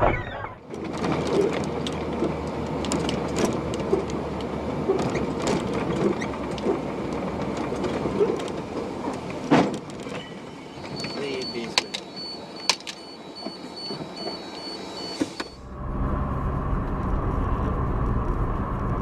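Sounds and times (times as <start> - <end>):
vehicle road rumble: 0.0 - 19.0.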